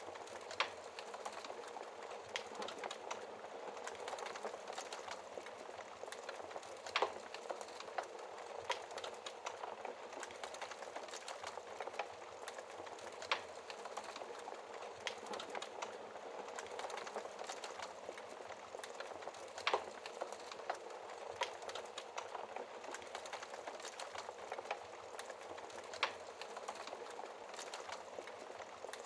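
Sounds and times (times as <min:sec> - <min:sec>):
wood fire hissing and crackling: 0:00.0 - 0:29.0.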